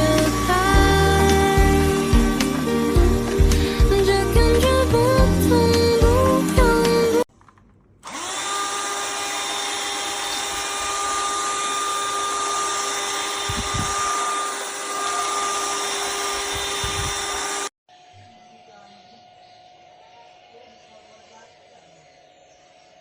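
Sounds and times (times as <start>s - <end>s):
handheld vacuum cleaner whining: 0.0s - 6.4s, 7.5s - 17.7s.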